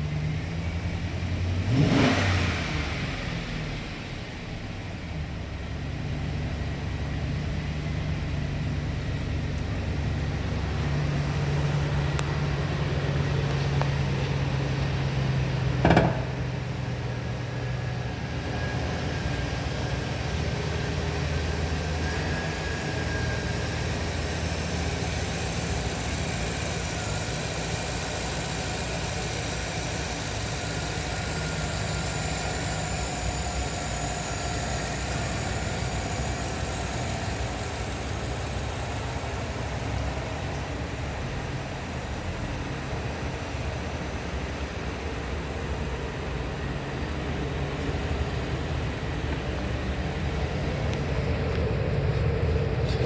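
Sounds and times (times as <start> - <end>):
truck engine idling: 0.0 - 1.8, 3.1 - 53.0
sharp clack: 15.8 - 16.6.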